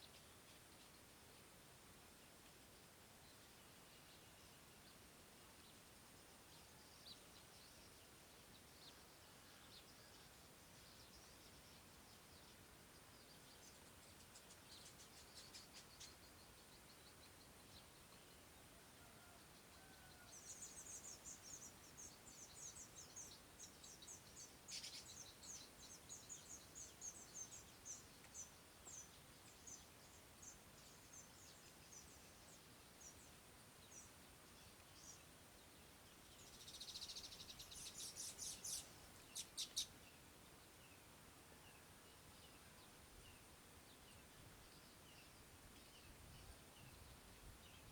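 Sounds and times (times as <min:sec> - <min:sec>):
small bird chirping: 0:13.1 - 0:18.3, 0:20.4 - 0:35.3, 0:36.1 - 0:40.2.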